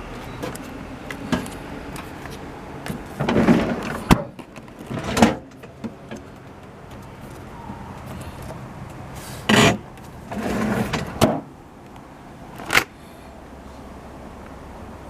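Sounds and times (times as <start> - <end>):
refrigerator drawer sliding: 3.2 - 4.3, 9.5 - 11.4.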